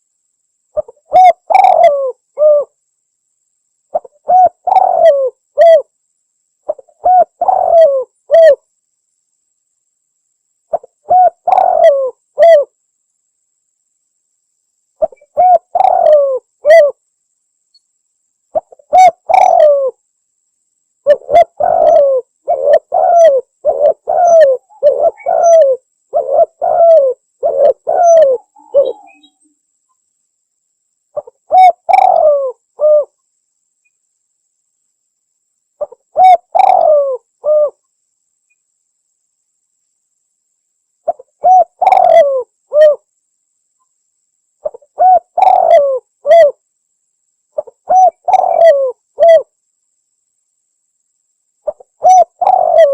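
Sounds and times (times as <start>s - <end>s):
dove cooing: 0.8s - 2.8s, 3.9s - 5.9s, 6.7s - 8.6s, 10.7s - 12.7s, 15.0s - 17.0s, 18.5s - 20.0s, 21.0s - 29.4s, 31.2s - 33.2s, 35.8s - 37.8s, 41.1s - 43.0s, 44.6s - 46.6s, 47.6s - 49.5s, 51.6s - 52.9s.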